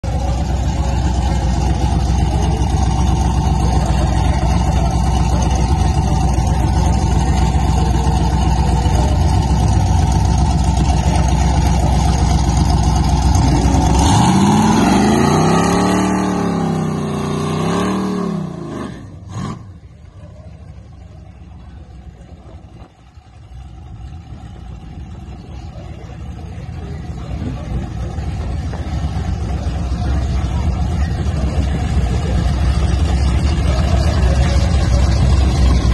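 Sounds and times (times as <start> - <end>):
car engine revving high: 12.1 - 19.8.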